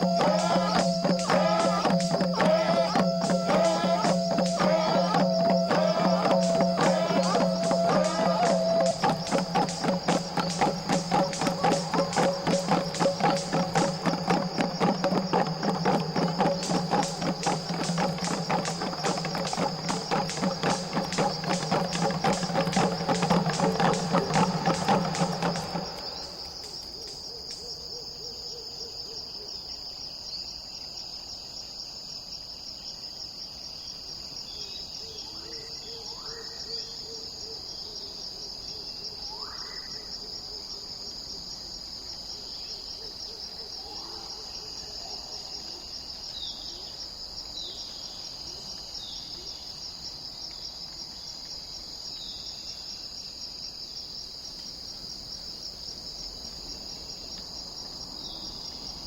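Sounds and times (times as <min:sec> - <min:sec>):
birds calling: 0:00.0 - 0:27.7
insect chorus: 0:00.0 - 0:59.0.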